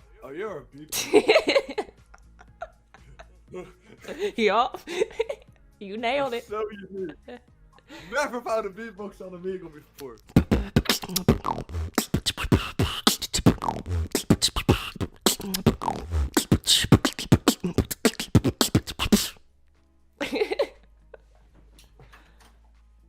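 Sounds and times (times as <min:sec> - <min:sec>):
person beatboxing: 0:10.2 - 0:19.4.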